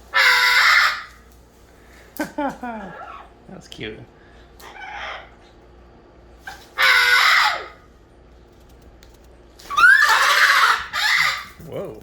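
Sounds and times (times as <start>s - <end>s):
parrot screeching: 0.0s - 1.2s, 4.6s - 5.4s, 6.4s - 7.9s, 9.6s - 11.7s.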